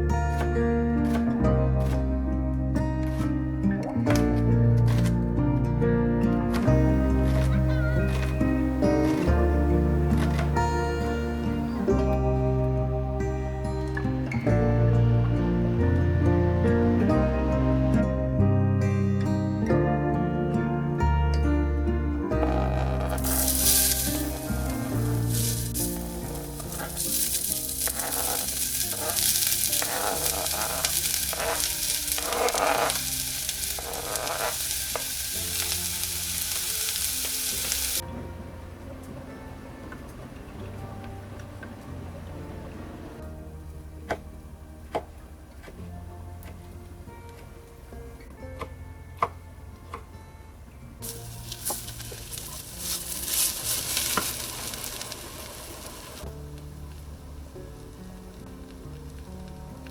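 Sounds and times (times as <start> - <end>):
food sizzling in a frying pan: 22.4 - 38.0, 51.0 - 56.2
scraping in a pan: 22.4 - 38.0.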